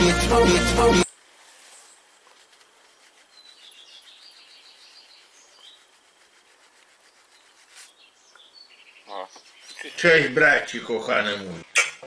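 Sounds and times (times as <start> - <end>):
outdoor background noise: 1.0 - 12.0
faint bird chirping: 1.1 - 10.6.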